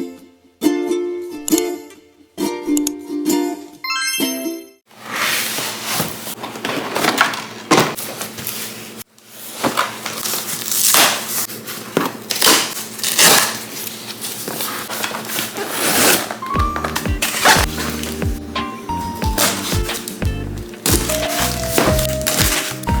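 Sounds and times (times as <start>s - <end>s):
packaging crinkling and crackling: 5.4s - 18.2s, 19.2s - 23.0s.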